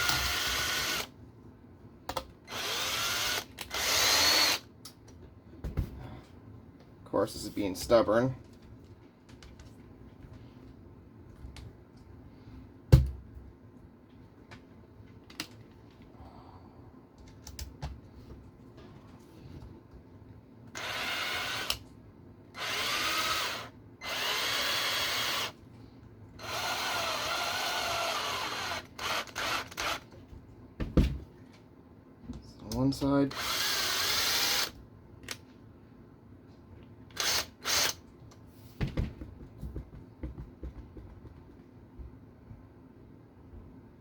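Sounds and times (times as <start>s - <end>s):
power screwdriver driving screws: 20.8s - 21.8s, 26.4s - 30.0s, 37.1s - 38.0s.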